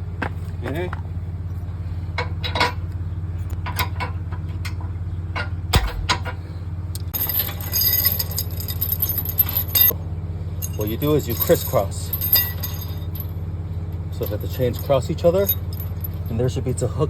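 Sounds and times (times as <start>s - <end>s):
steady low hum: 4.6s - 17.0s
heavier metal knock: 5.7s - 6.4s
metal chains clinking and rattling: 7.1s - 10.0s, 10.6s - 16.8s.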